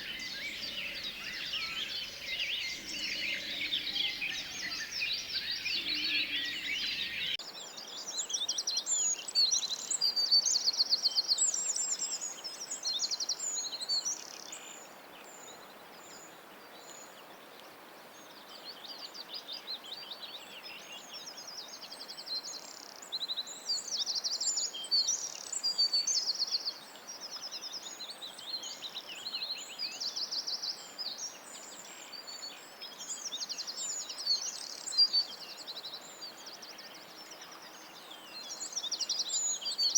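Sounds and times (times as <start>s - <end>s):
songbirds chirping and trilling: 0.0s - 10.6s, 11.4s - 39.9s.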